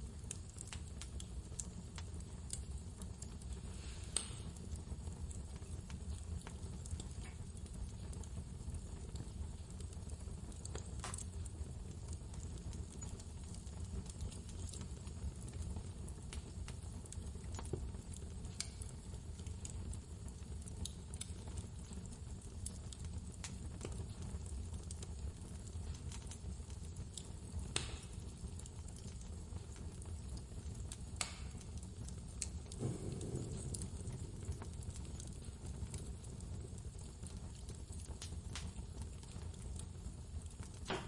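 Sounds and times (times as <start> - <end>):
wood fire crackling: 0.0 - 41.0
blizzard wind rumbling: 32.8 - 35.5.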